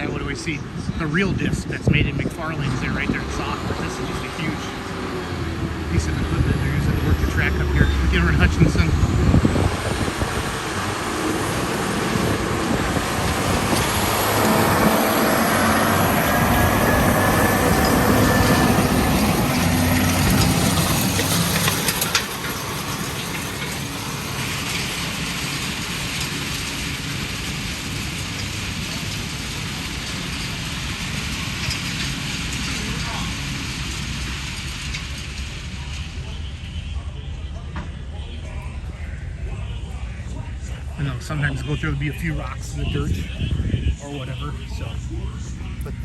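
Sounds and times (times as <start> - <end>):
heavy tractor engine running: 0.0 - 46.0.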